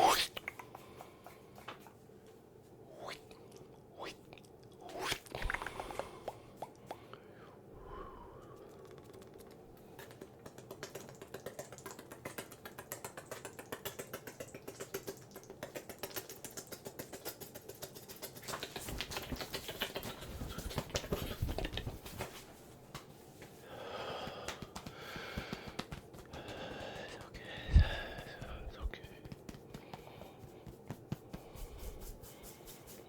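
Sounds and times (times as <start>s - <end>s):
brush scratching microphone: 30.4s - 33.0s.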